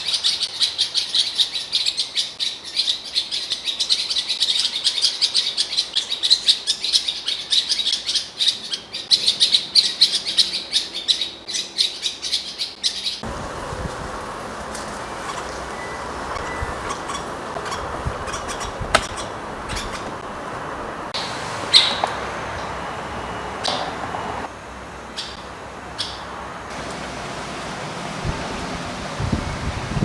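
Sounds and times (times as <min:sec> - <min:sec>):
bird warbling song: 0:00.0 - 0:13.2, 0:14.9 - 0:20.2, 0:21.6 - 0:22.2, 0:25.1 - 0:26.4
steady rushing noise: 0:26.4 - 0:30.0.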